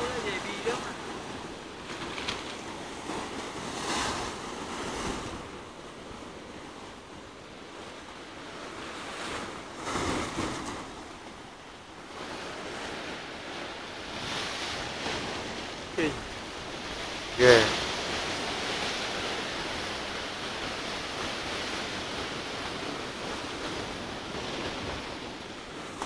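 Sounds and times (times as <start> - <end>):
waves breaking: 0.0 - 26.0.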